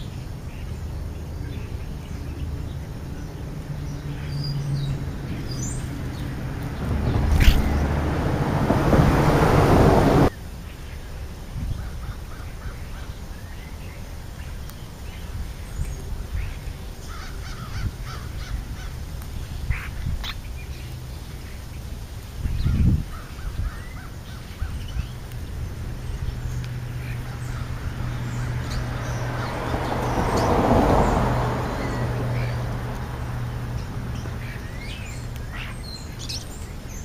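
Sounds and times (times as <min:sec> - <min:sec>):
low rush of noise: 0:00.0 - 0:19.7
birds chirping: 0:00.0 - 0:37.0.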